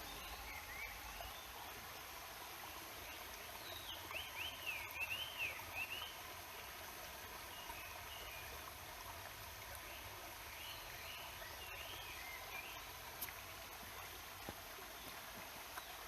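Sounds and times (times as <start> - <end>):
songbird singing: 0.0 - 1.6, 3.6 - 6.2.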